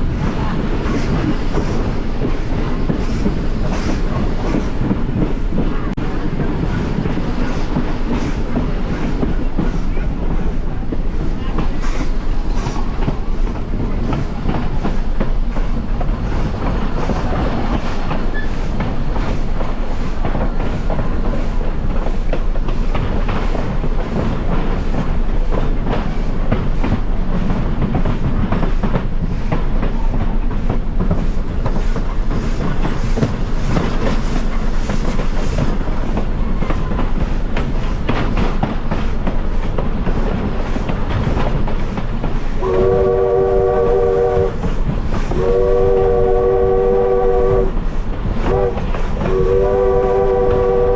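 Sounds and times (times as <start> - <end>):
train wheels clattering on rails: 0.0 - 50.9
steam locomotive whistle blast: 42.6 - 44.6, 45.3 - 47.8, 48.4 - 50.9.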